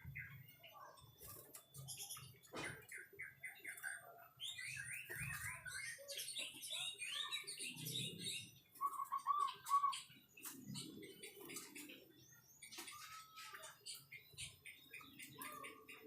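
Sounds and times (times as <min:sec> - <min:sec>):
bird warbling song: 0:00.0 - 0:16.0
bird whistles: 0:08.8 - 0:10.1.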